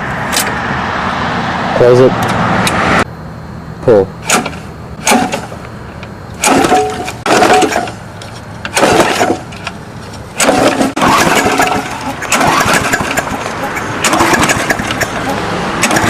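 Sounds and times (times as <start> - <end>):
lawnmower engine turning over: 4.2 - 16.0.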